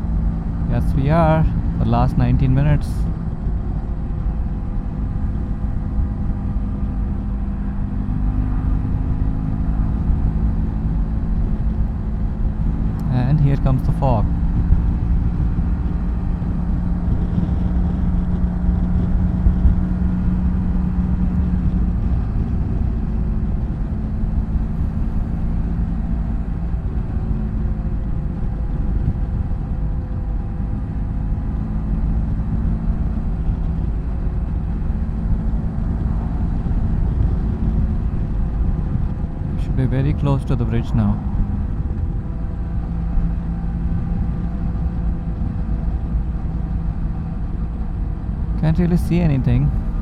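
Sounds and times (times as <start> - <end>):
motorcycle engine running: 0.0 - 39.6
heavy wind: 0.0 - 50.0
road rumble: 0.0 - 50.0.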